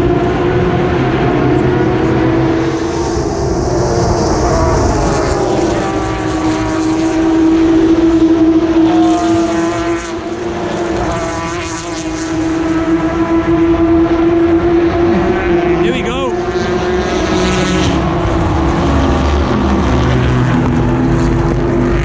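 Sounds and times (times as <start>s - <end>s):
race cars accelerating past: 0.0s - 22.0s
steady drone: 0.0s - 22.0s.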